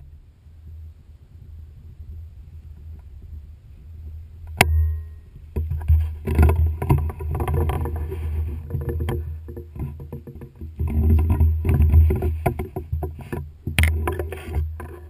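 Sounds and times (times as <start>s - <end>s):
irregular rattling clatter: 5.5s - 15.0s.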